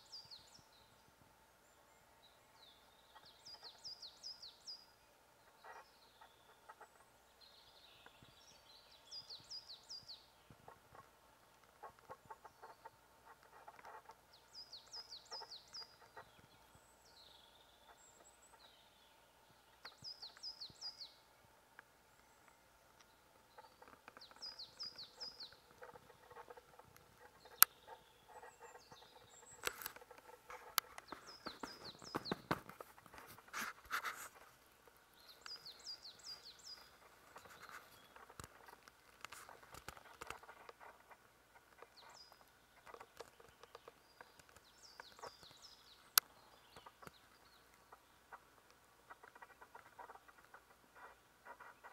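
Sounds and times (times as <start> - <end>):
faint outdoor background noise: 0.0 - 51.9
songbird singing: 0.0 - 51.9
rustling near microphone: 28.3 - 45.6.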